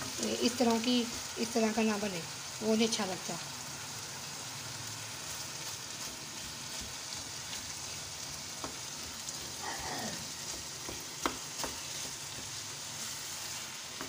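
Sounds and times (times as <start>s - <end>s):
meat sizzling in a pan: 0.0s - 14.0s
spatula tapping pan: 8.5s - 8.9s, 10.4s - 12.7s
wooden spatula stirring: 10.2s - 14.0s.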